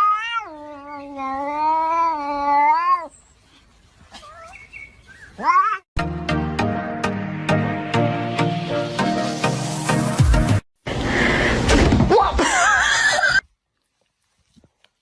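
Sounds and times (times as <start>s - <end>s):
cat yowling and meowing: 0.0s - 3.1s, 5.3s - 5.9s.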